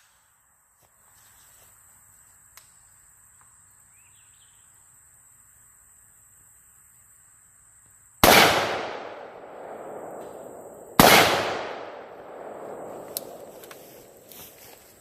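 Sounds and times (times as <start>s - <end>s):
rifle shots with echo: 8.2s - 14.2s.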